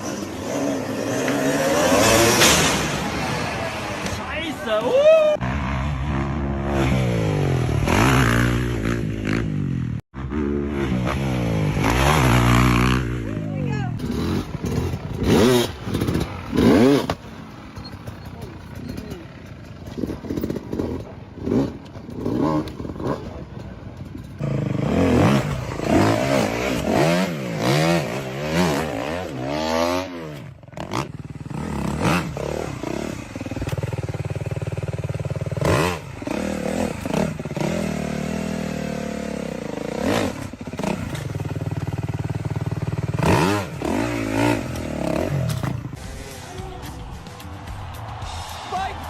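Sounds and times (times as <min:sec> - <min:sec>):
dirt bike engines revving: 0:00.0 - 0:49.0.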